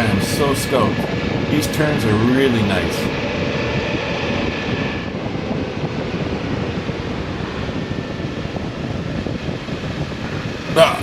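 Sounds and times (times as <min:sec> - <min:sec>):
faint high whine: 0:00.0 - 0:05.2, 0:09.3 - 0:11.0
wind rushing over microphone: 0:00.0 - 0:11.0
road noise: 0:09.2 - 0:11.0.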